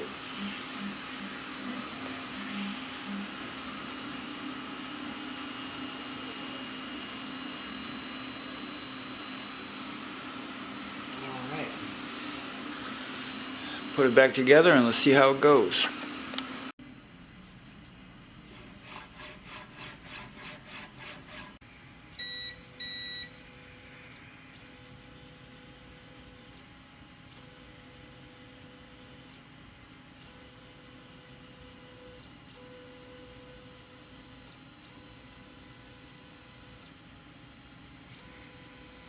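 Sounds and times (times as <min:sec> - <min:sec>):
stepper motors whining: 0:21.4 - 0:39.0
short beeps: 0:22.2 - 0:23.4.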